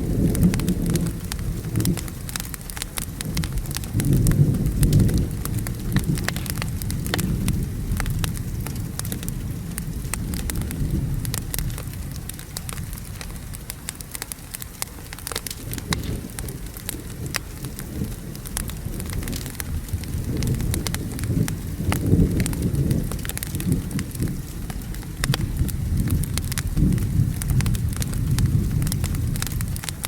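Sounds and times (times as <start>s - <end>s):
thunder rumbling: 0.0s - 14.1s, 15.0s - 30.0s
steady rain: 0.0s - 30.0s
wood fire crackling: 0.0s - 30.0s.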